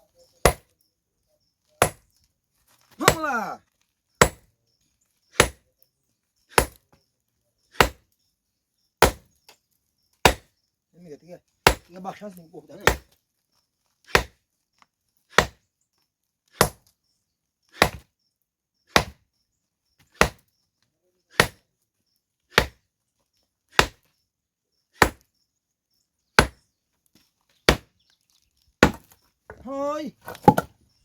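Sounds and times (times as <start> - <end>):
hammer striking stone: 1.8 - 2.0, 4.2 - 4.4, 5.4 - 5.6, 6.6 - 6.8, 9.0 - 9.3, 10.3 - 10.5, 11.7 - 11.9, 12.8 - 13.1, 15.4 - 15.6, 17.8 - 18.0, 21.4 - 21.6, 23.8 - 24.0, 25.0 - 25.2, 26.4 - 26.6, 28.8 - 29.6, 30.3 - 30.7.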